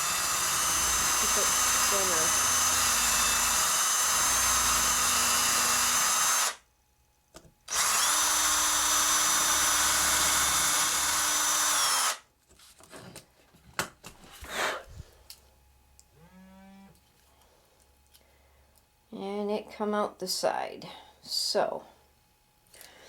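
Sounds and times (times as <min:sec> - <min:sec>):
electric drill boring metal: 0:00.0 - 0:06.6, 0:07.7 - 0:12.2.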